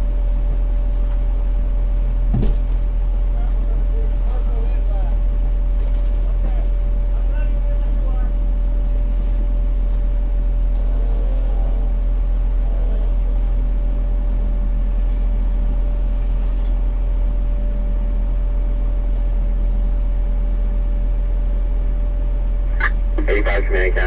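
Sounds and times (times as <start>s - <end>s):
diesel engine drone: 22.6s - 24.0s
faint hum-like tone: 22.7s - 24.0s.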